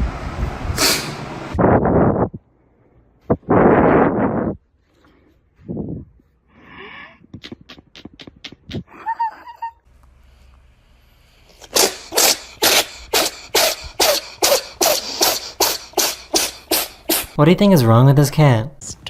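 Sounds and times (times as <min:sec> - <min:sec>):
cat sneeze-like huffs: 0:00.8 - 0:01.2, 0:11.6 - 0:17.4.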